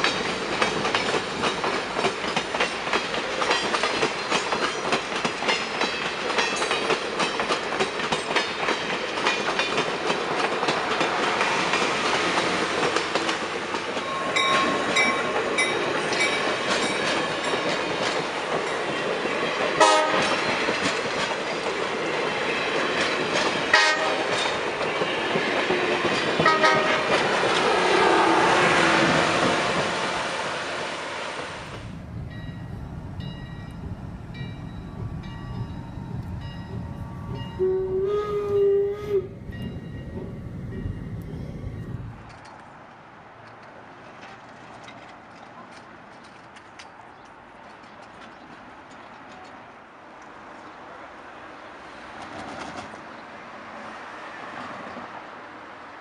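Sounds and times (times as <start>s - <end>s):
train wheels clattering: 0.0s - 30.0s, 31.6s - 42.6s
train horn: 19.8s - 20.4s, 23.7s - 24.5s, 26.4s - 40.4s.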